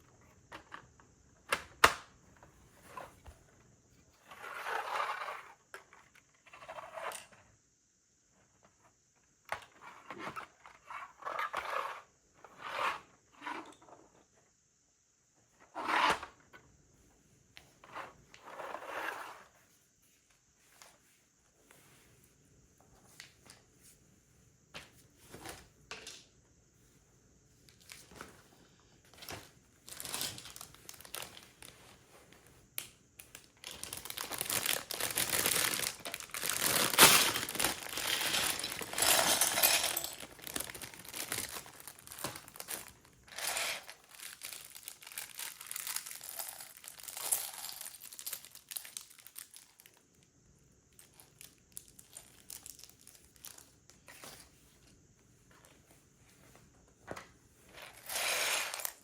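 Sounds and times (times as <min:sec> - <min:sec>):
plastic bag crinkling: 0:29.4 - 0:31.9, 0:33.4 - 0:50.0.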